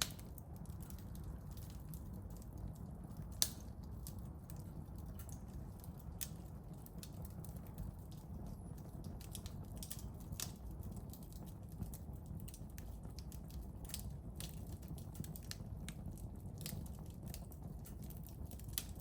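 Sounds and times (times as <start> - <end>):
loud pop of fire: 0.0 - 0.5
firewood crackling and snapping: 0.0 - 19.0
low rumble of flames: 0.0 - 19.0.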